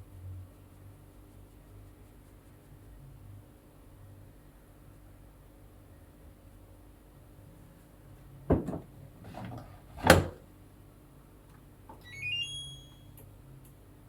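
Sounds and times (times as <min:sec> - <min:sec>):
washing machine door thumps: 0:08.5 - 0:10.4
electronic power-on chime: 0:12.1 - 0:13.1.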